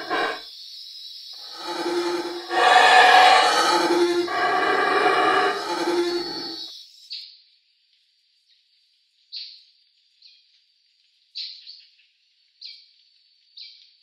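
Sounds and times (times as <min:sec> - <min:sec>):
bird calling high notes: 0:01.5 - 0:06.6.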